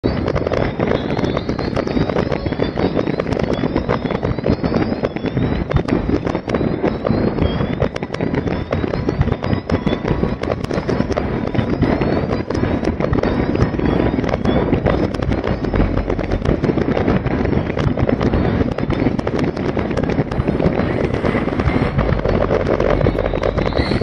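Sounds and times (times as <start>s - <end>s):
fireworks crackling and popping: 0.0s - 24.0s
low rumble: 9.0s - 24.0s.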